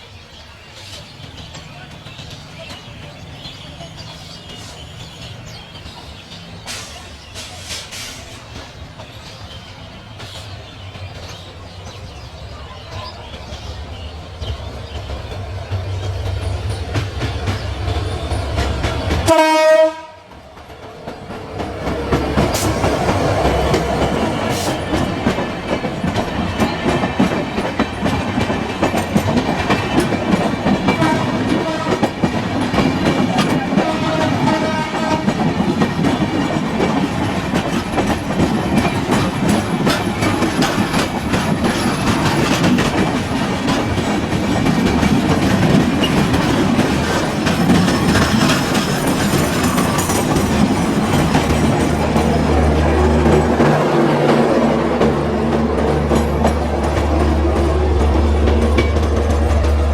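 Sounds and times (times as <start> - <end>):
train wheels clickety-clack: 0.0 - 59.9
train horn blast: 19.2 - 20.4, 30.9 - 32.2, 33.8 - 35.5.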